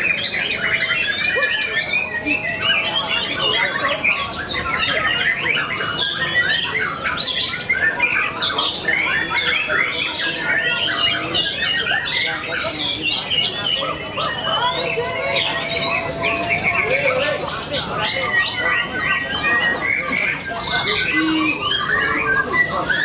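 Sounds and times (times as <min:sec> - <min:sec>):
songbirds chorus: 0:00.0 - 0:23.0.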